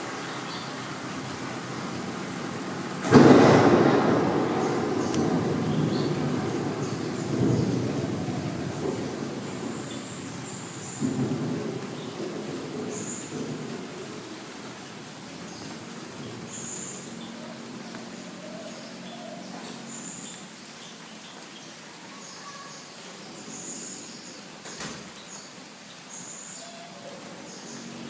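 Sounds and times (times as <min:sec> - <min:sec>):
birds chirping: 0:00.0 - 0:28.0
steady hiss: 0:00.0 - 0:28.0
thunder rumble: 0:00.9 - 0:17.9.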